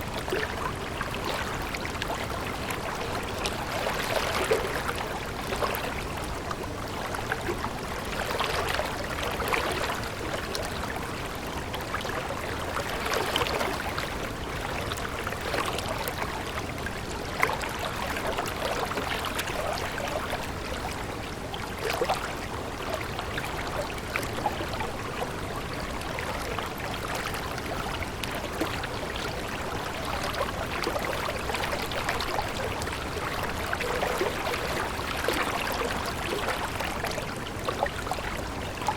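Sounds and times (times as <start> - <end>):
stream water running: 0.0 - 38.9.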